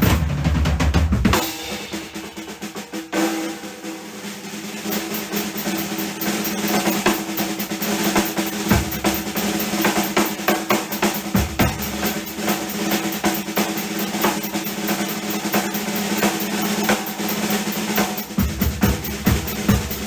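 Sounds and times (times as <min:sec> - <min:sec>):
deep low drum hits: 0:00.0 - 0:01.4, 0:11.4 - 0:12.2
snare and tom rolls: 0:00.0 - 0:20.0
cymbal strokes: 0:04.9 - 0:20.0.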